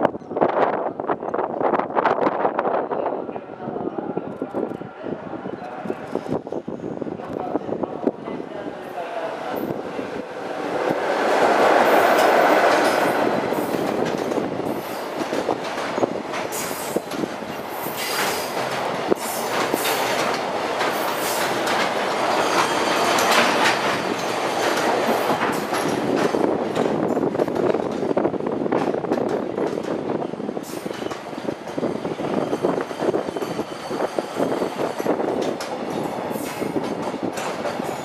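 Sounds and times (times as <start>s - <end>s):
electric locomotive passing: 4.9s - 38.0s
wheels clacking over rail joints: 10.5s - 30.0s.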